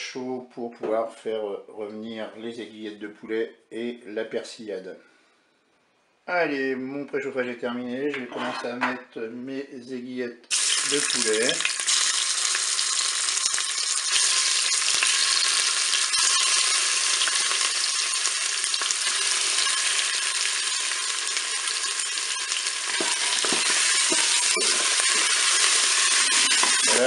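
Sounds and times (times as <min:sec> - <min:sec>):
chicken sizzling in hot oil: 0:10.5 - 0:27.0
wooden spatula knocks: 0:23.0 - 0:25.0.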